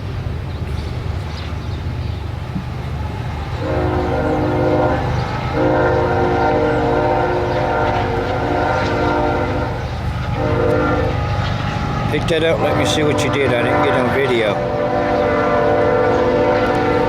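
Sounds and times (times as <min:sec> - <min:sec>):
train horn blasts: 0:03.5 - 0:17.0.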